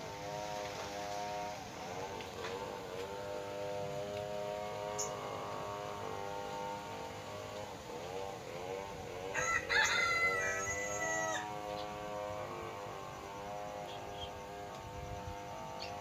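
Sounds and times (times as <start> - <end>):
rooster crowing: 9.2 - 11.8.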